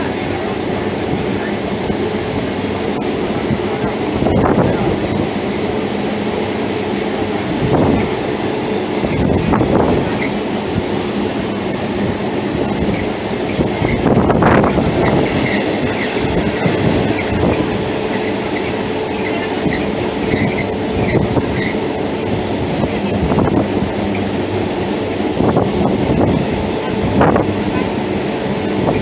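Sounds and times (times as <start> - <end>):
train wheels rumbling on rail: 0.0 - 29.0
high wheel squeals: 12.8 - 22.0.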